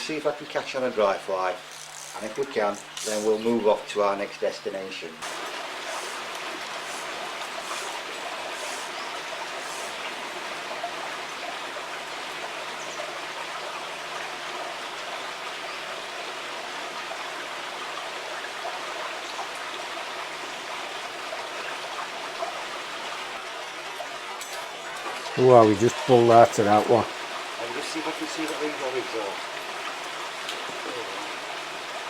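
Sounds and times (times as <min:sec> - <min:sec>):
river water flowing: 0:00.0 - 0:32.0.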